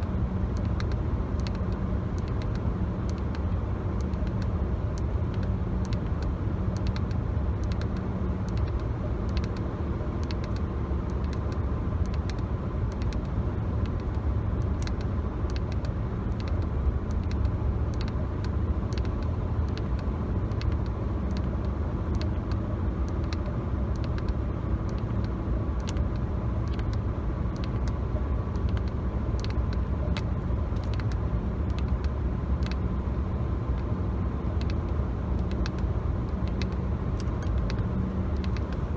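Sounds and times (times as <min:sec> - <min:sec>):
car road rumble: 0:00.0 - 0:38.9.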